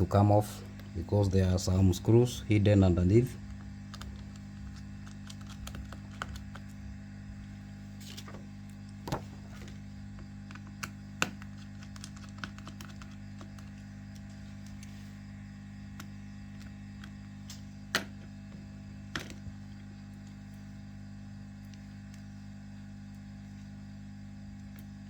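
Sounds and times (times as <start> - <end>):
steady low hum: 0.0 - 25.0
small tools clicking on phone parts: 10.5 - 14.9.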